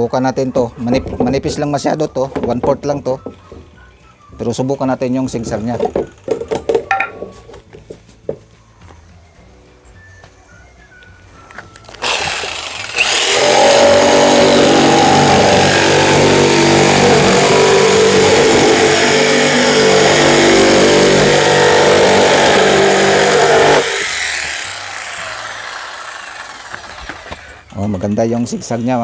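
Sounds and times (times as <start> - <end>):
jigsaw cutting plywood: 12.0 - 27.7.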